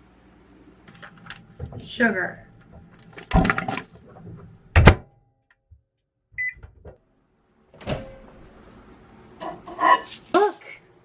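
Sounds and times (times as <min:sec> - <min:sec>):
microwave oven clunk: 0:04.7 - 0:05.2, 0:07.7 - 0:08.7
microwave short beep: 0:06.4 - 0:06.6.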